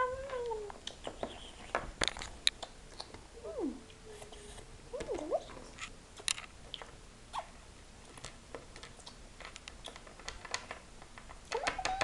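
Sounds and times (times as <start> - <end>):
plastic toys clicking on hard surface: 8.2 - 12.0.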